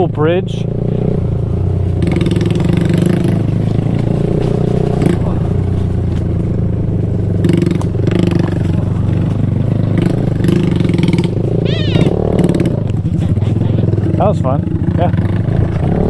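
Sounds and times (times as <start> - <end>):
mini bike engine running: 0.0 - 16.0.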